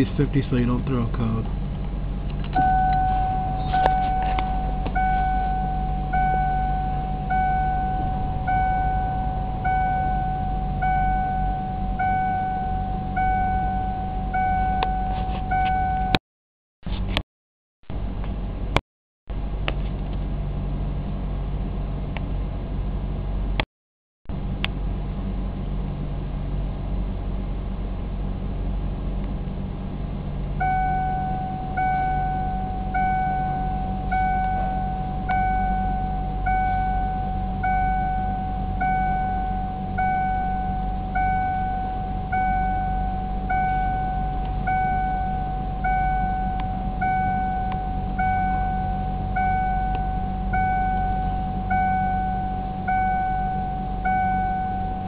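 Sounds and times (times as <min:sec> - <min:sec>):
low hum: 0:00.0 - 0:16.2, 0:24.3 - 0:55.0
electronic beep chime: 0:02.5 - 0:16.2, 0:30.6 - 0:55.0.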